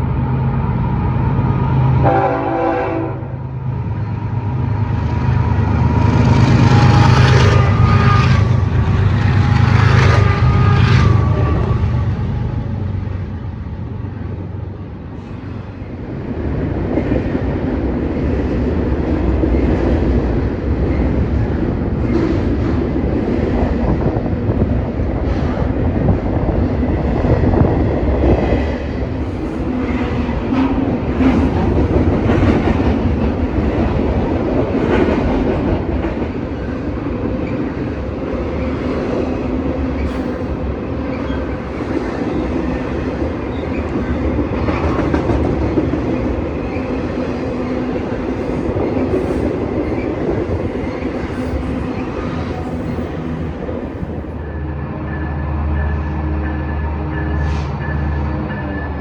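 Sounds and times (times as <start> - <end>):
train rumble: 0.0 - 59.0.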